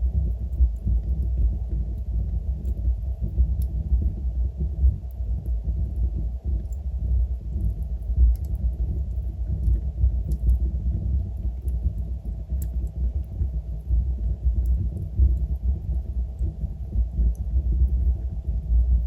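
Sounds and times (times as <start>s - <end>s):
fireplace fire rumbling: 0.0s - 19.0s.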